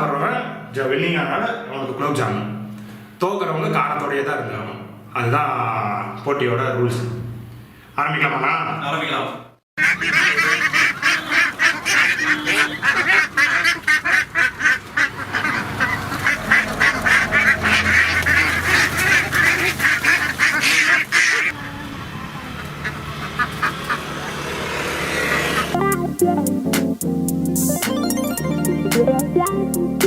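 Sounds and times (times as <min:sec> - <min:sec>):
flock of waterfowl calling: 0:09.8 - 0:25.8.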